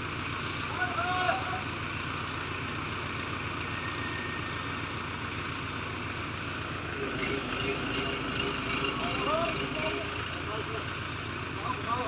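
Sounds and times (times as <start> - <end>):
diesel engine running: 0.0 - 12.0
higher steady tone: 2.0 - 6.5.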